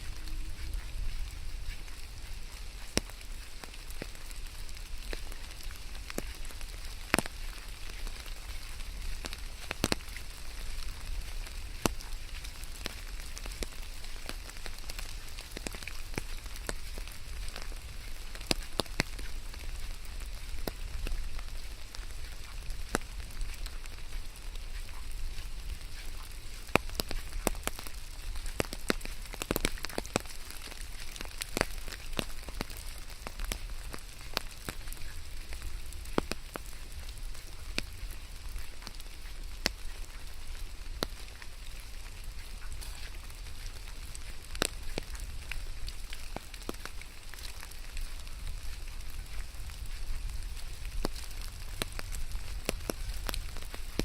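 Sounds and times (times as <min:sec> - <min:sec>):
rain drops hitting a surface: 0:00.0 - 0:54.0.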